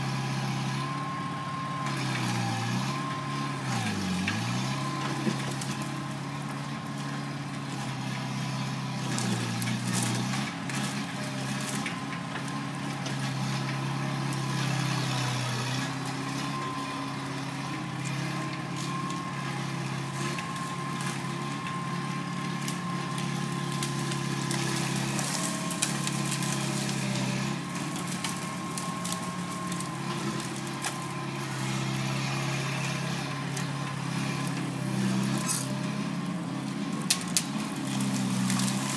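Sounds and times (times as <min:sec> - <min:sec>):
loader engine running: 0:00.0 - 0:38.9.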